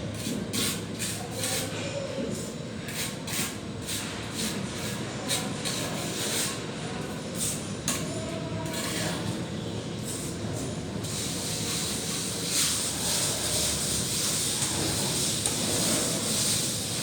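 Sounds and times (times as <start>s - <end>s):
trowel scraping across wall: 0.1s - 1.7s, 2.9s - 6.6s, 8.6s - 9.4s, 11.0s - 17.0s.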